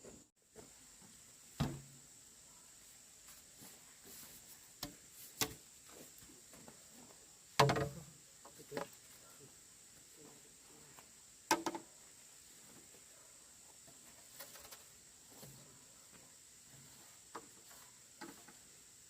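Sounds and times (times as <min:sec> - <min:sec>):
sharp knocks: 0:07.6 - 0:08.0.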